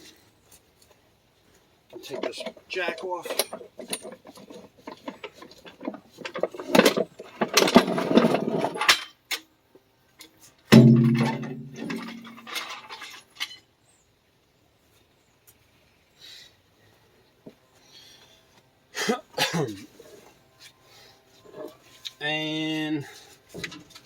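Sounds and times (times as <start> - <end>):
metal jack clicking and clattering: 2.0 - 9.4, 10.7 - 13.6
loud metal clang: 10.7 - 12.5.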